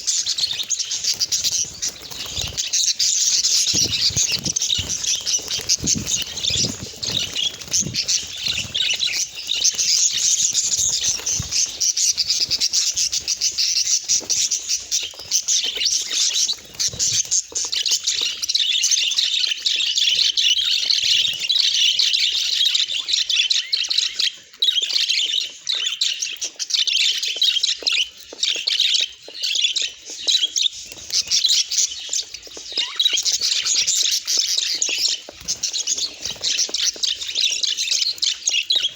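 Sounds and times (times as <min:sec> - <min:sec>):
budgerigars chattering: 0:00.0 - 0:26.2, 0:29.6 - 0:38.9.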